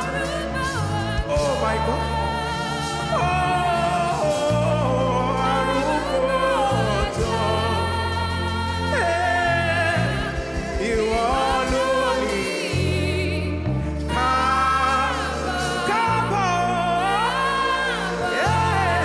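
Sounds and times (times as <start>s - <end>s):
gospel singing with backing voices: 0.0s - 19.0s
keyboard accompaniment: 0.0s - 19.0s
low bass notes: 0.0s - 19.0s.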